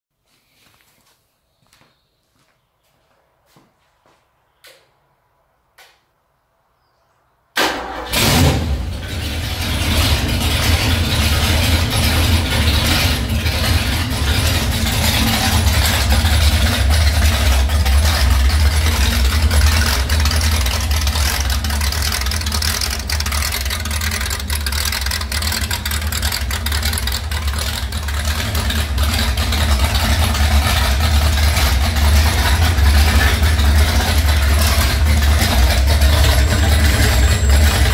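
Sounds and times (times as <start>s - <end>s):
car engine starting and running: 7.6s - 37.9s.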